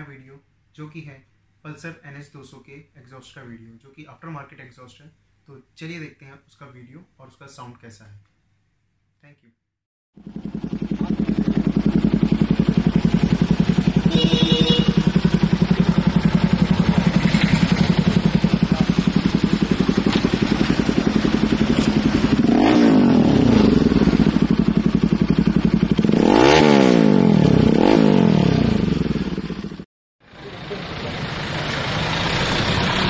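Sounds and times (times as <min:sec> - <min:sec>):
motorcycle engine idling and revving: 0:10.2 - 0:33.0.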